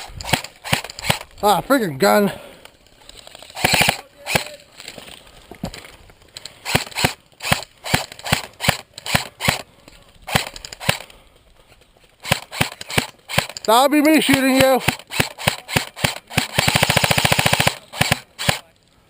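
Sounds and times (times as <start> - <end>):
airsoft guns firing: 3.4 - 4.6, 6.6 - 9.7, 10.3 - 11.1, 12.2 - 18.7.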